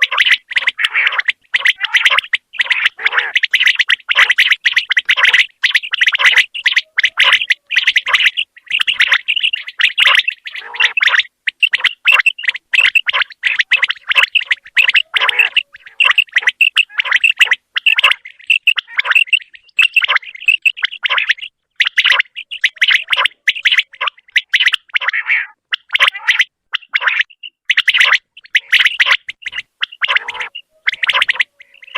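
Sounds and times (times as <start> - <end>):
quail calling: 0.0 - 31.9.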